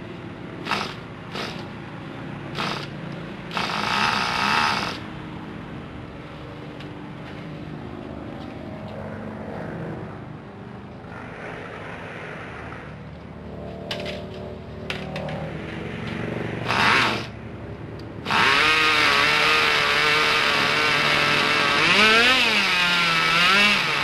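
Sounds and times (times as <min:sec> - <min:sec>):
rc car engine running: 0:16.7 - 0:17.3, 0:18.3 - 0:24.0.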